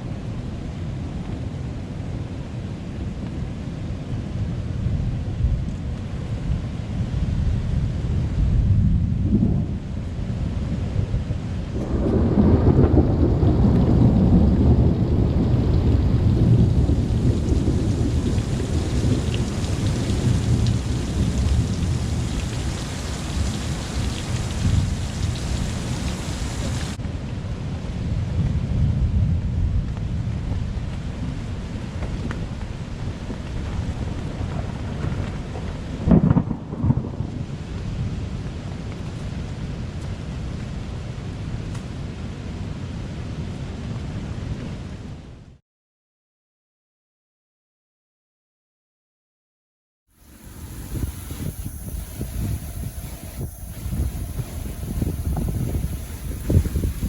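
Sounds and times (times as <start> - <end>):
steady rain hiss: 0.0 - 45.1, 50.1 - 57.0
thunder rumbling: 4.3 - 39.9, 50.2 - 57.0.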